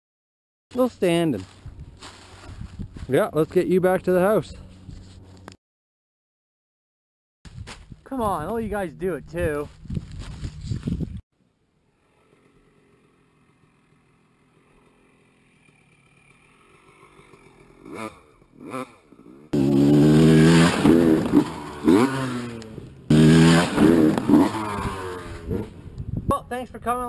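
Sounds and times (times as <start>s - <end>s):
two-stroke motorcycle engine revving: 12.2s - 26.1s.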